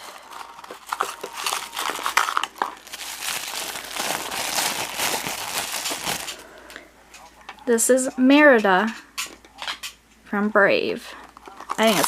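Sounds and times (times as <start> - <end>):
plastic packet tearing and crinkling: 0.0 - 6.4, 11.4 - 12.0.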